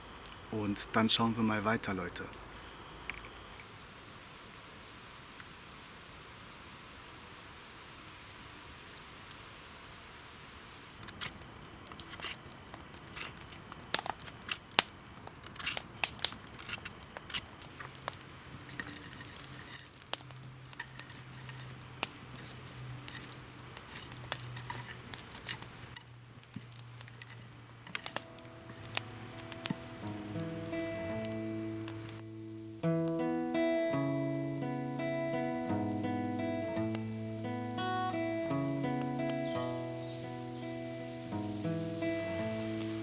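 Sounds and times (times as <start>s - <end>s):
dry twigs snapping and crackling: 11.0s - 33.6s.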